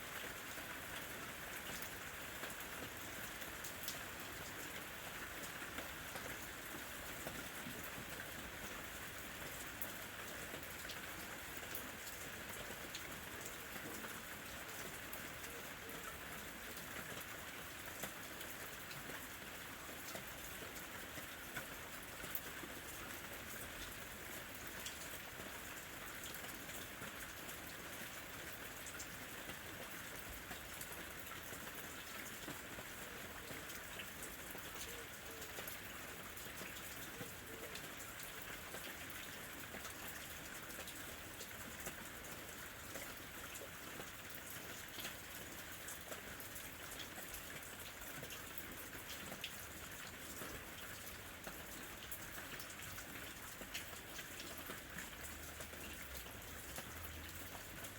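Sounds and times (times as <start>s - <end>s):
raindrops ticking close by: 0.1s - 57.9s.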